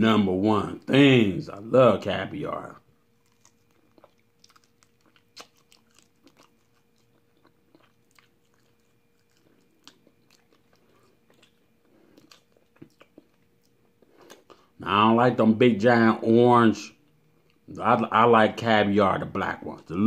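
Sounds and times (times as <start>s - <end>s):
person chewing crunchy food: 3.0s - 14.7s.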